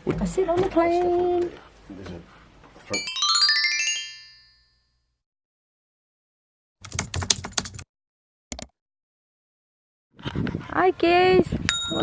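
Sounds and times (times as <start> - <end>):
piano tune: 3.0 - 4.7.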